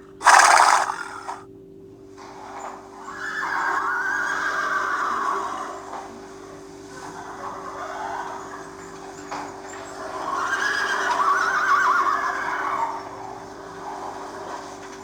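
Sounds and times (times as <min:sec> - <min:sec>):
horse whinnying: 0:00.2 - 0:01.4, 0:10.4 - 0:13.2.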